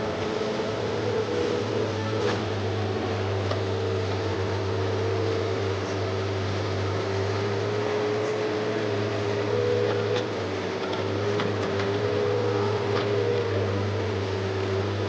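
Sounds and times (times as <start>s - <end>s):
excavator engine hum: 0.0s - 15.0s
hydraulic whine: 0.0s - 15.0s.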